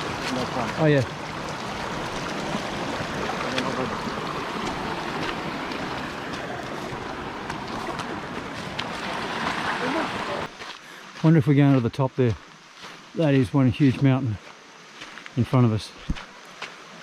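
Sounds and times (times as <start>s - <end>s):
stream water rushing: 0.0s - 11.4s.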